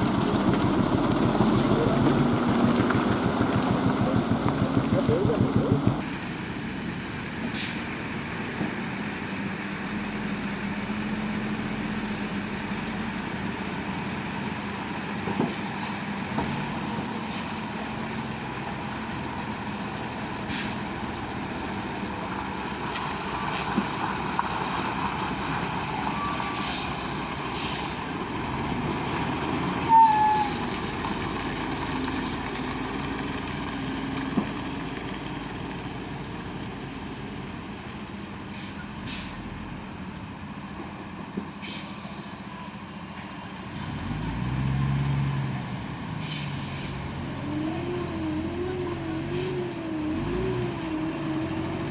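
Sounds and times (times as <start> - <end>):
lorry diesel engine: 0.0 - 51.9
short high squeak: 29.6 - 30.7.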